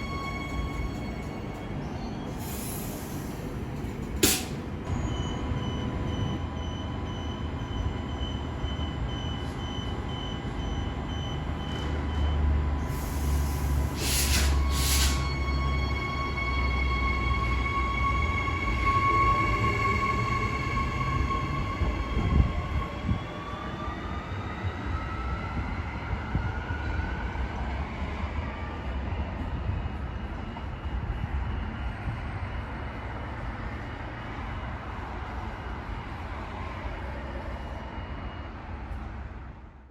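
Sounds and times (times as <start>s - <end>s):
train rumbling on track: 0.0s - 39.9s
train whine rising in pitch: 13.0s - 27.4s.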